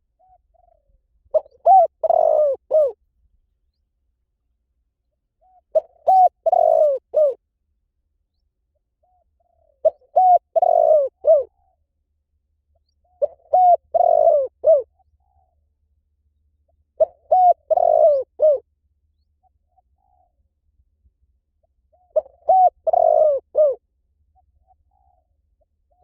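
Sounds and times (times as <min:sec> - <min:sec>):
dove cooing: 0:00.2 - 0:03.0, 0:05.4 - 0:07.4, 0:09.0 - 0:11.8, 0:13.0 - 0:15.6, 0:17.0 - 0:18.6, 0:21.9 - 0:23.8, 0:24.4 - 0:25.3.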